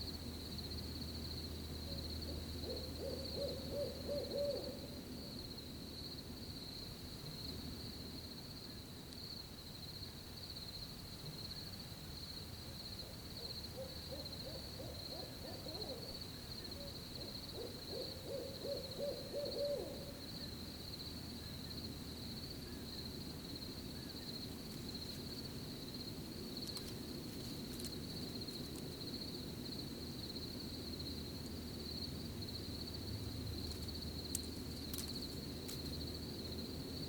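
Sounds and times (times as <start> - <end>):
crickets chirping: 0.0 - 37.0
owl hooting: 1.9 - 5.0, 13.0 - 20.5.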